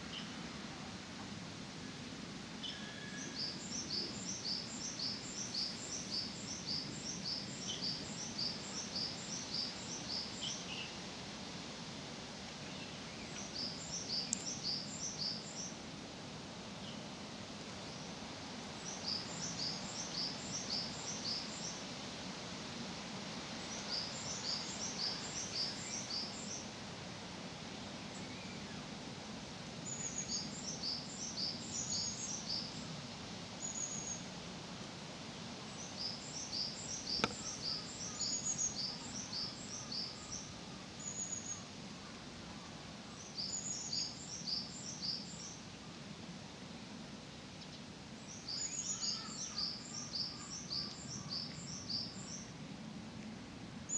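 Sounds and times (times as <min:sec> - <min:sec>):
songbird singing: 0:00.0 - 0:00.4, 0:01.8 - 0:11.0, 0:12.6 - 0:15.8, 0:17.8 - 0:21.9, 0:23.5 - 0:26.8, 0:27.8 - 0:29.0, 0:29.8 - 0:33.0, 0:33.6 - 0:34.3, 0:35.6 - 0:46.0, 0:47.5 - 0:52.6.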